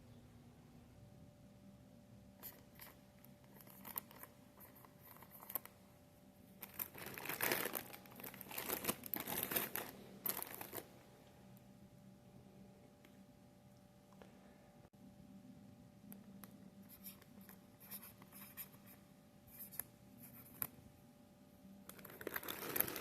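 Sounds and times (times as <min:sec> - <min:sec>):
crinkling rustling handling noise: 0:06.6 - 0:11.1, 0:21.9 - 0:23.0.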